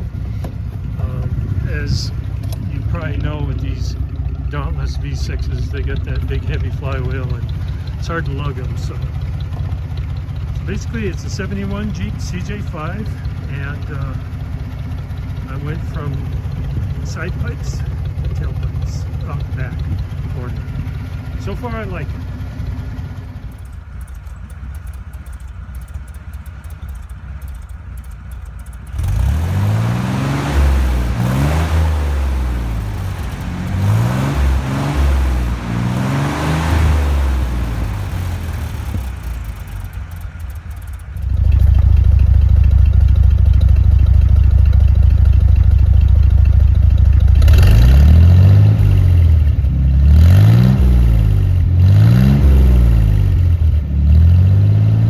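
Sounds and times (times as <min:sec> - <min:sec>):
engine exhaust revving: 0:00.0 - 0:55.0.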